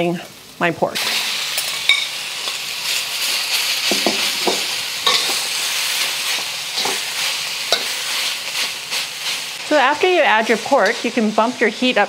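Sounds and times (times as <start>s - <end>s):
meat sizzling in a wok: 0.0s - 12.0s
metal spatula scraping wok: 1.0s - 9.5s.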